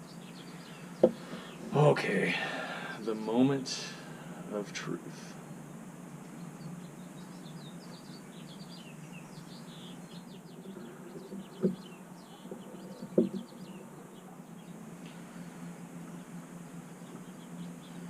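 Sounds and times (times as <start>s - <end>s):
low hum: 0.0s - 18.0s
small birds chirping: 0.0s - 18.0s
sharp knocks: 1.0s - 1.4s, 11.6s - 11.9s, 13.0s - 13.5s.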